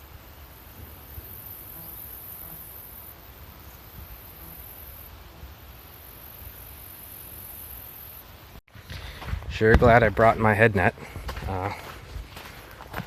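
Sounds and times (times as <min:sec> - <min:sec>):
insects trilling: 0:00.0 - 0:08.5.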